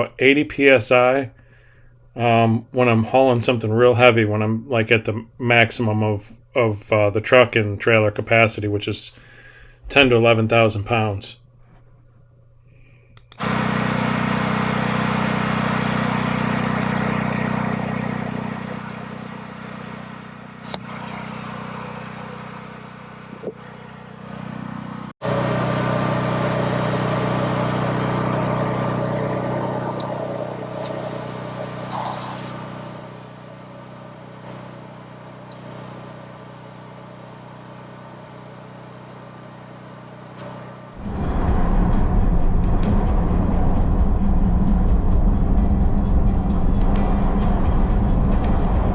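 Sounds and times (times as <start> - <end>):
pickup truck engine: 13.3 - 35.7, 40.3 - 48.9
road noise: 13.4 - 33.2, 40.4 - 48.9.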